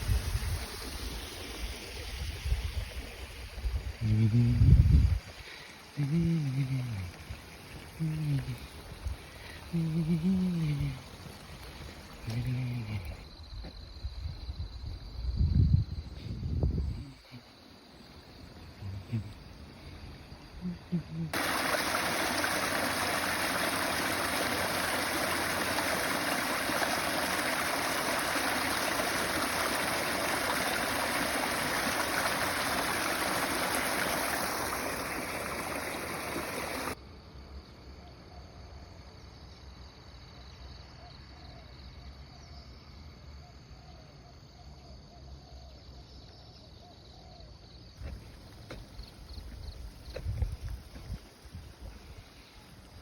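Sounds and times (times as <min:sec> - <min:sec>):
running water rushing: 0:00.0 - 0:04.0, 0:05.0 - 0:13.2, 0:21.3 - 0:37.0.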